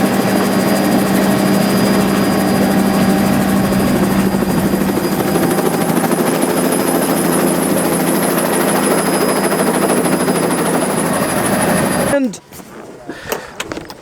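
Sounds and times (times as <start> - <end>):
rushing air: 0.0 - 8.1
low hum: 0.0 - 8.9
helicopter rotor beating: 0.0 - 12.2.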